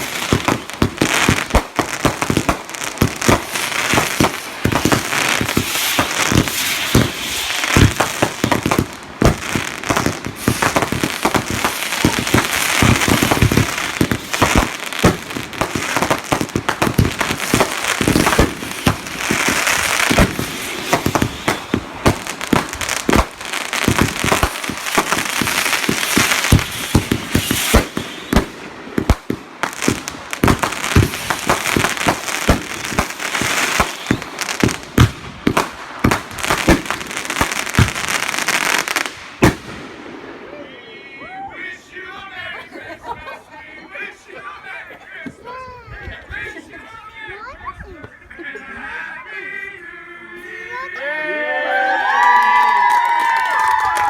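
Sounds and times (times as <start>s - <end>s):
fireworks bangs and booms: 0.0s - 42.3s
dense fireworks crackling: 0.0s - 43.4s, 51.7s - 54.0s.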